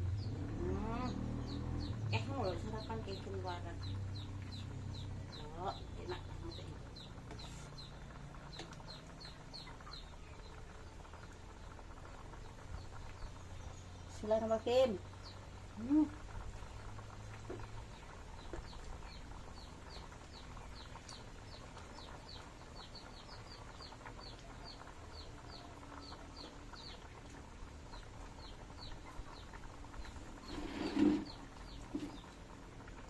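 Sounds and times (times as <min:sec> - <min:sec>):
bird chirping: 0:00.0 - 0:14.3.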